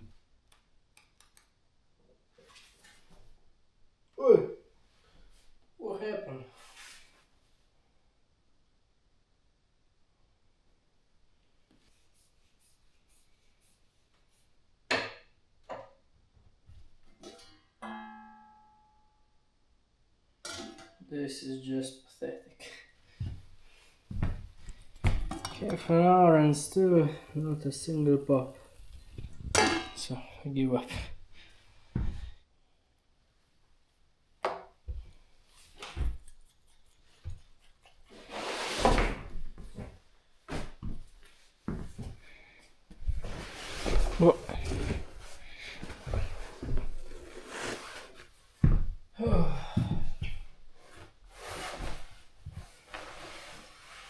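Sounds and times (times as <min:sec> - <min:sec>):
metal cookware knocks: 0:29.6 - 0:30.0
rustling scrape: 0:36.7 - 0:39.1, 0:43.2 - 0:48.4, 0:50.8 - 0:54.0.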